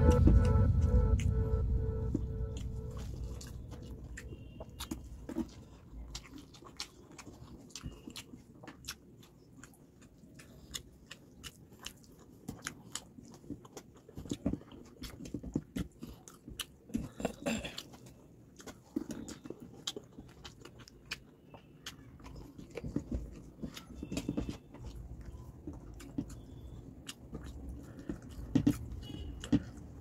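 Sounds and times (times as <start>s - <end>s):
background music: 0.0s - 4.0s
wet chewing and lip smacks: 2.6s - 30.0s.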